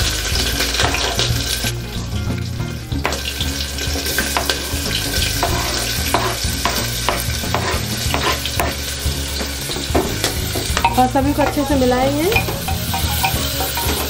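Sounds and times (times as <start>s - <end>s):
vegetables sizzling in hot oil: 0.0s - 14.0s
scraping off chopping board: 5.4s - 8.8s.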